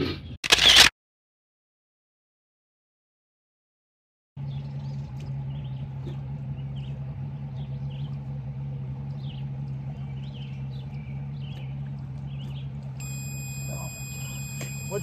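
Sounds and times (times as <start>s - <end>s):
small birds chirping: 4.4s - 15.0s
steady low hum: 4.4s - 15.0s.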